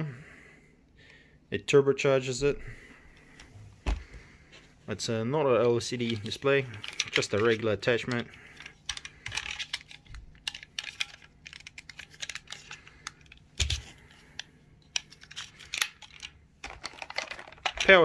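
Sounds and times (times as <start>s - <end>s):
plastic parts clicking and knocking: 5.6s - 18.0s.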